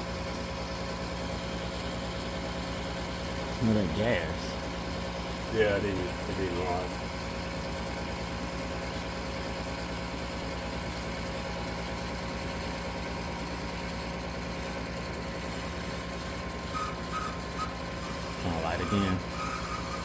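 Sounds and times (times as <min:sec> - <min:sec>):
motor humming: 0:14.4 - 0:20.0.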